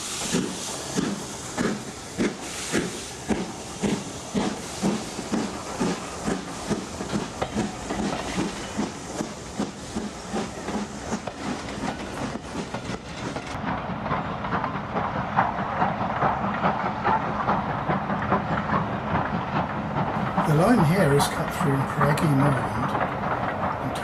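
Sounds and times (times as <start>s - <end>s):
steam hiss: 0.0s - 13.6s, 20.2s - 24.0s
model steam engine chuffing: 0.0s - 24.0s
wheels clattering on rail joints: 0.2s - 24.0s.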